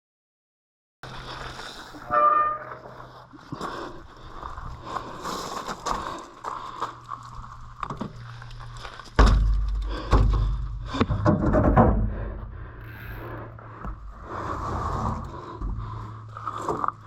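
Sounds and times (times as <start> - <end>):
bike clicks and rattles: 1.1 - 14.5
heavy low rumble with thumps: 5.8 - 17.0.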